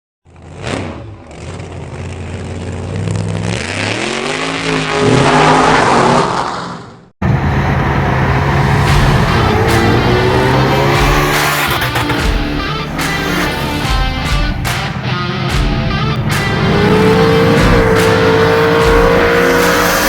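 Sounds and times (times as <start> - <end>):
engine low rumble: 0.3 - 3.5, 7.2 - 19.4
drag car engine revving: 7.2 - 20.0.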